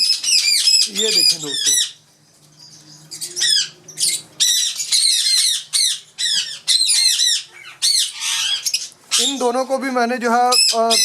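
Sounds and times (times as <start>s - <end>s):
parrots screeching: 0.0s - 2.0s, 3.0s - 9.5s, 10.5s - 11.0s.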